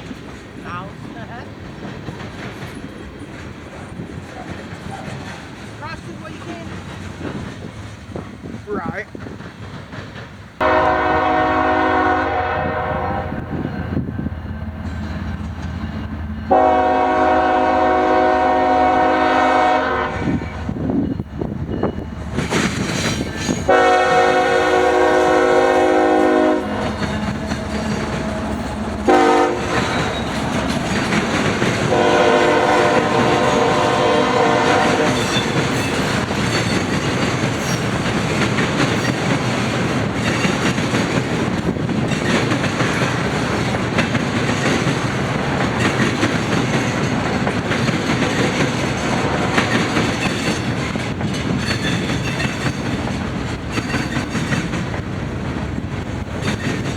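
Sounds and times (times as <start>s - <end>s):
train rumble and wheel clatter: 0.0s - 56.9s
train horn blasts: 10.6s - 13.6s, 16.5s - 20.7s, 23.7s - 30.6s, 31.8s - 35.7s.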